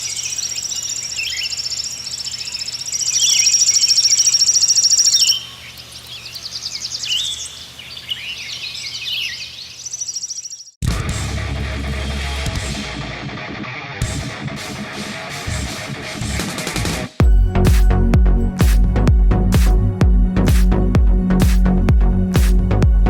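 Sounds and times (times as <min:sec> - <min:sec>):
rapid high bird trill: 0:00.0 - 0:10.8
small birds chirping: 0:00.0 - 0:10.8.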